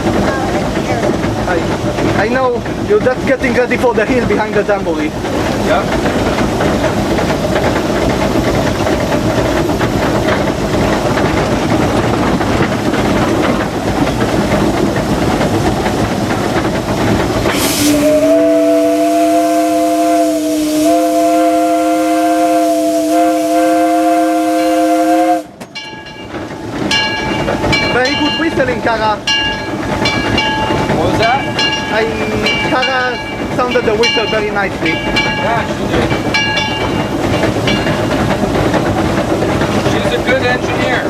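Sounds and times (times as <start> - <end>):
steam locomotive hissing and running: 0.0 - 41.0
steam whistle chord: 17.5 - 25.5.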